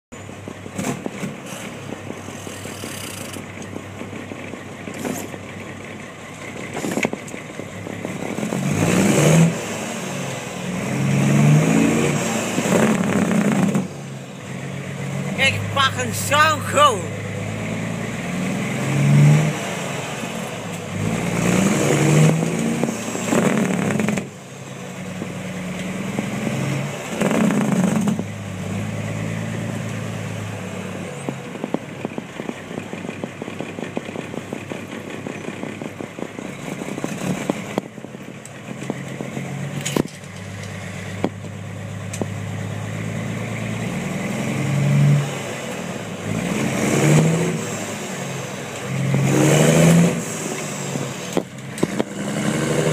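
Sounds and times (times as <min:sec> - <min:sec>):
loud diesel truck engine revving: 0:04.8 - 0:31.7, 0:40.7 - 0:52.9.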